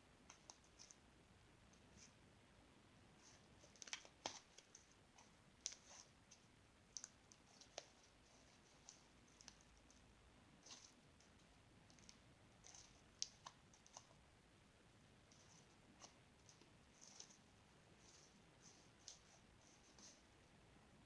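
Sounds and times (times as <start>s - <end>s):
faint small clicks and taps: 0.2s - 1.0s, 3.2s - 14.2s.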